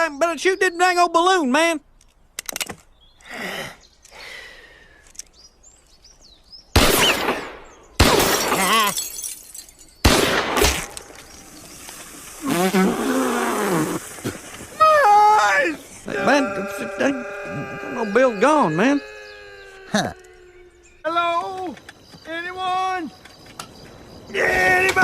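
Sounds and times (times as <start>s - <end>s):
man crying out: 14.8s - 20.9s.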